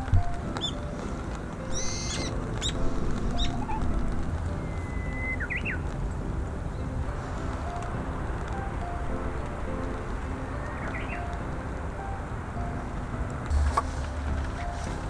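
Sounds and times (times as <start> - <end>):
steady low rumble: 0.0 - 15.0
bird whistle with rising notes: 1.7 - 2.8, 4.6 - 5.8
short high bird chirps: 1.8 - 2.8.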